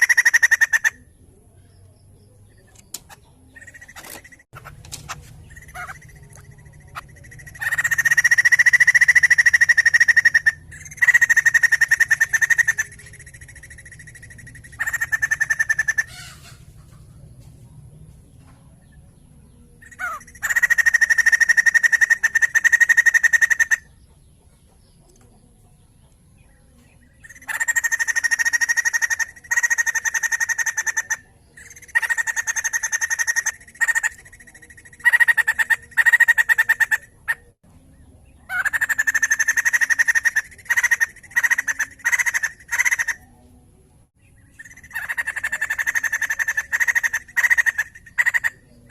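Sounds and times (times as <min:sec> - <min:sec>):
bird chattering calls: 0:00.0 - 0:01.1, 0:02.7 - 0:17.1, 0:19.8 - 0:24.1, 0:27.2 - 0:37.6, 0:38.4 - 0:43.3, 0:44.5 - 0:48.9.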